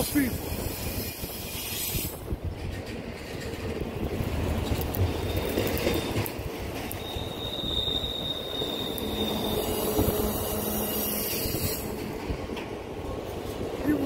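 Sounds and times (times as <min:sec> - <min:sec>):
train wheels rumbling: 0:00.0 - 0:14.0
high wheel squeal: 0:05.1 - 0:06.3, 0:06.9 - 0:12.0.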